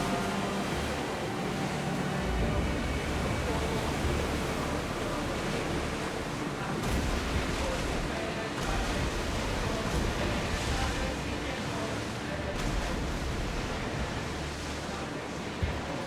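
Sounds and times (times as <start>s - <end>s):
low rumble: 0.0s - 11.8s
sea water rushing: 0.0s - 16.0s
wind: 0.0s - 16.0s.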